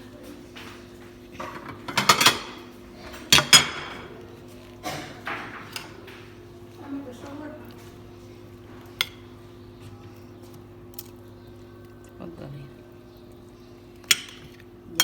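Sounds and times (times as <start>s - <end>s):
metal spoon clinking on dishes: 1.4s - 2.7s, 3.3s - 4.1s, 14.0s - 15.0s.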